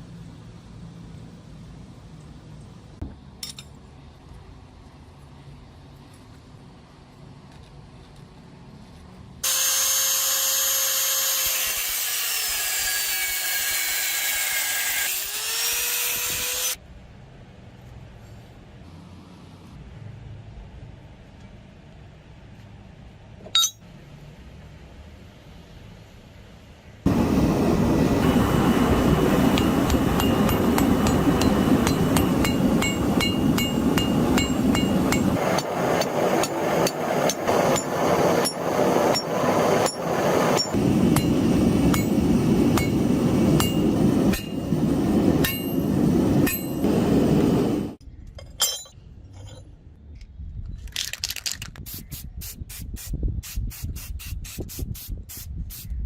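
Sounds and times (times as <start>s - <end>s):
hammer striking ringing steel: 23.6s - 23.8s, 29.5s - 43.0s, 43.6s - 44.7s, 45.4s - 46.9s
steady rushing noise: 27.0s - 48.0s.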